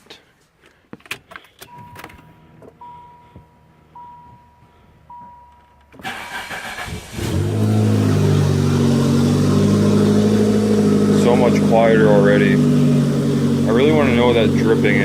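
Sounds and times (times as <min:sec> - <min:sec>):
car warning chime: 0:01.6 - 0:06.4
car engine idling: 0:01.8 - 0:15.0
starter motor cranking: 0:06.0 - 0:08.4.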